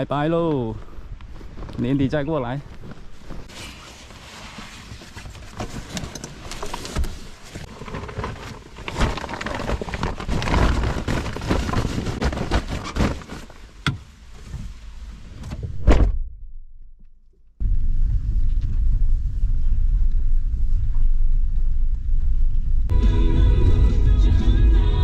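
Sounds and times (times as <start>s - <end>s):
rustling: 2.6s - 15.3s.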